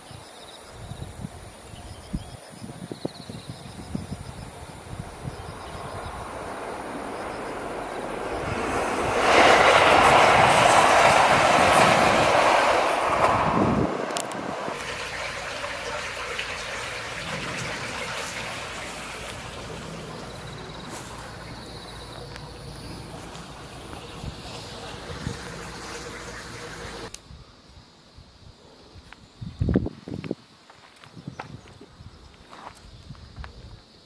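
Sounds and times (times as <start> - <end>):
train passing close by: 4.0 - 27.1.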